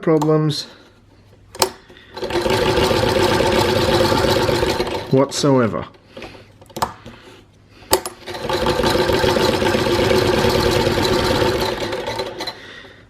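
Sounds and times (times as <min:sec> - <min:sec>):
sewing machine stitching: 0:02.2 - 0:05.2, 0:08.2 - 0:12.6.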